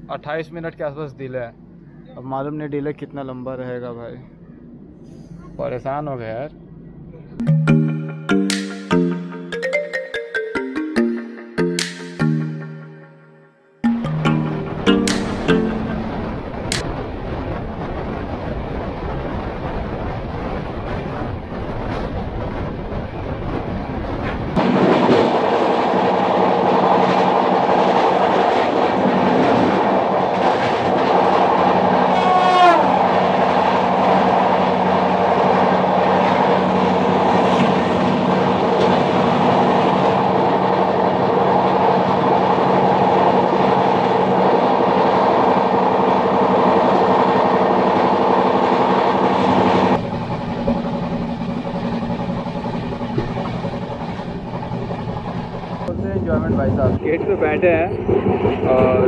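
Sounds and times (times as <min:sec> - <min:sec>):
train wheels rolling on rail: 0:14.9 - 0:59.0
droning tone: 0:49.9 - 0:55.9.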